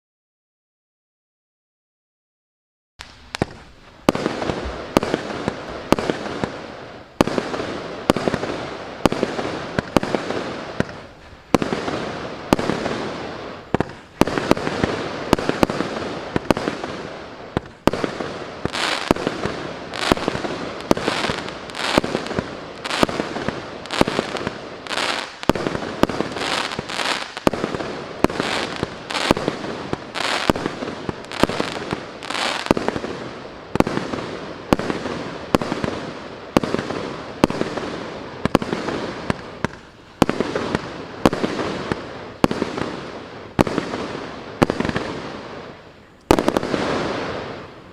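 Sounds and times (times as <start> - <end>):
firework hissing and crackling: 3.0 - 47.9
firework reports: 3.0 - 47.9.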